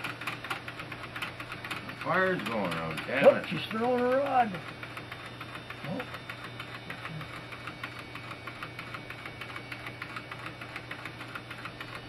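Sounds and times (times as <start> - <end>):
person speaking: 2.5 - 4.6.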